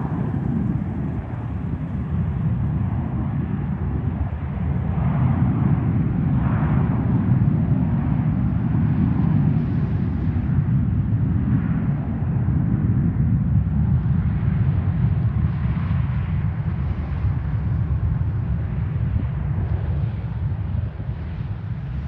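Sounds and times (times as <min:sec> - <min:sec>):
jet engines rumbling: 0:00.0 - 0:16.2.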